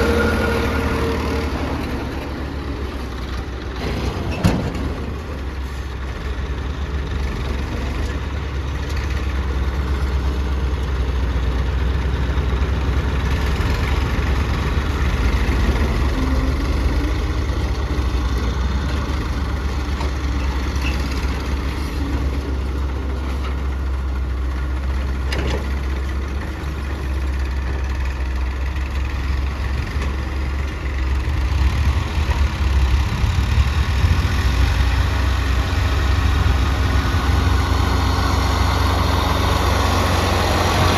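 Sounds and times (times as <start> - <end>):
heavy machine engine rumbling: 0.0 - 40.9.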